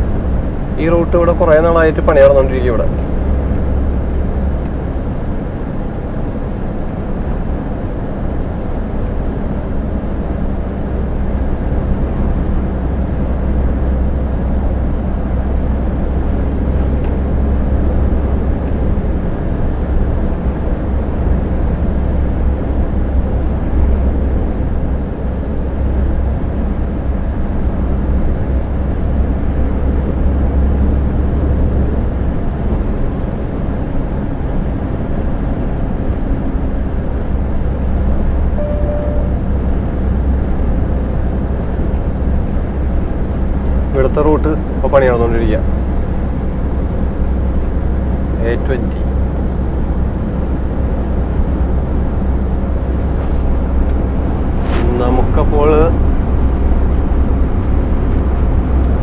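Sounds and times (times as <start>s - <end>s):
diesel engine drone: 0.0s - 59.0s
tyre and road noise: 49.0s - 59.0s.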